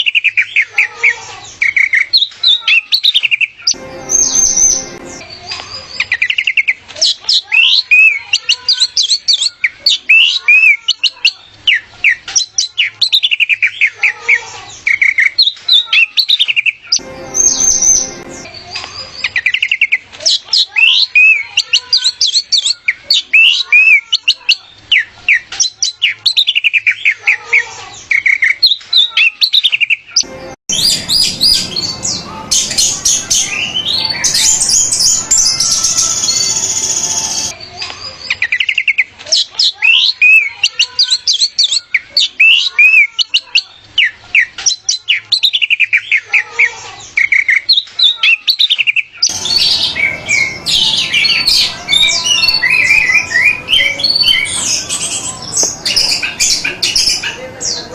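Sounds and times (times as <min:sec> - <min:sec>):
thrush singing: 0:03.8 - 0:05.4, 0:17.0 - 0:18.6, 0:30.2 - 0:37.6, 0:49.3 - 0:57.9.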